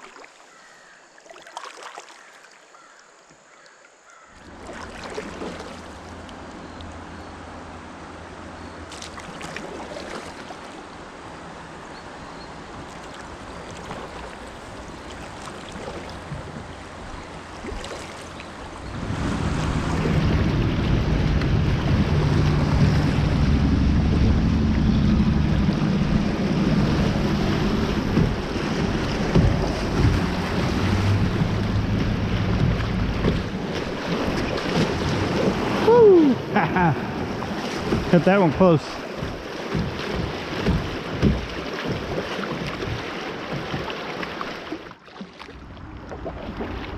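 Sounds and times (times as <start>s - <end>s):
water washing: 4.4s - 7.0s, 12.7s - 46.9s
fast water rushing: 4.4s - 46.9s
wind rumble on microphone: 18.6s - 38.2s.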